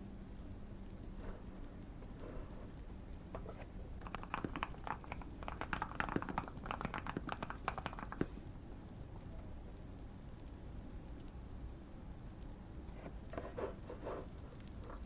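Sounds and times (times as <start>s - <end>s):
faint fireplace crackling: 0.0s - 15.0s
mechanical keyboard typing: 4.0s - 8.3s.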